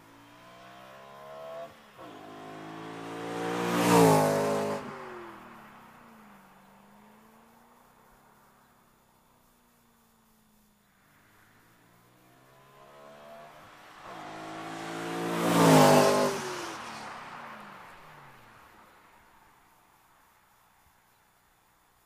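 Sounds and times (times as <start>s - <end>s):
car exhaust accelerating past: 0.1s - 5.8s, 11.6s - 19.0s.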